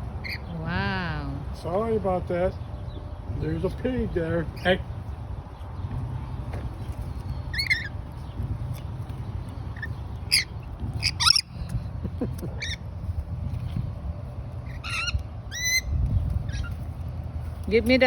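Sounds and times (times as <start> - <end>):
steady low rumble: 0.0 - 18.0
parrots squawking: 0.2 - 0.6, 7.4 - 8.2, 9.8 - 12.9, 14.6 - 16.8.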